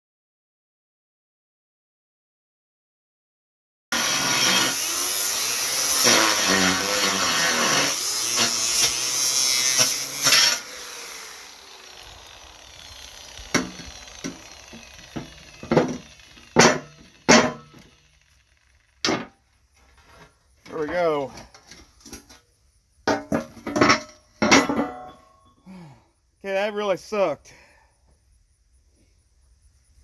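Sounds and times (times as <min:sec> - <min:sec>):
power saw cutting steel: 0:03.9 - 0:21.4
motor spinning down whine: 0:10.6 - 0:19.0
metal clanks and knocks: 0:15.1 - 0:17.9, 0:19.0 - 0:20.3, 0:23.1 - 0:25.4.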